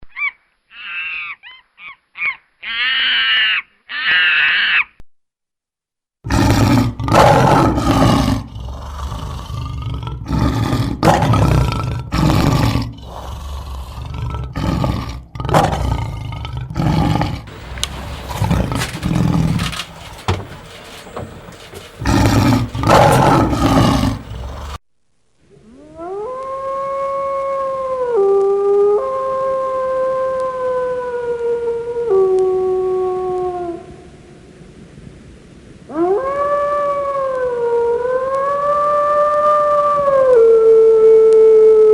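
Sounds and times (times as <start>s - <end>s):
lion roaring: 6.3s - 24.8s
wolf howling: 6.3s - 24.8s, 25.6s - 33.9s, 35.9s - 41.9s.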